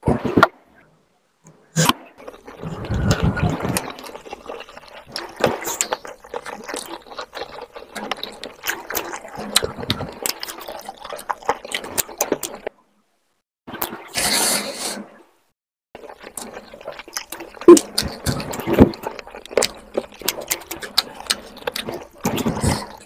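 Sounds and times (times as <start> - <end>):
person chewing and mouth sounds: 1.8 - 12.7, 16.0 - 23.0.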